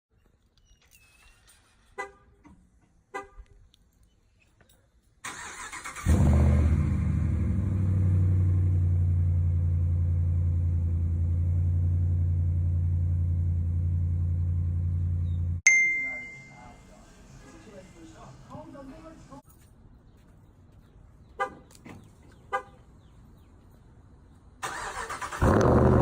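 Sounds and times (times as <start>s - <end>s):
engine cranking and starting: 5.2s - 7.2s, 24.6s - 26.0s.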